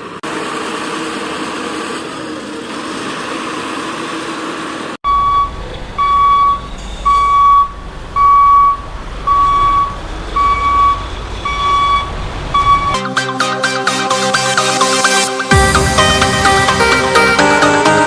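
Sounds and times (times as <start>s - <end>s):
reversing alarm beeping: 5.1s - 13.0s.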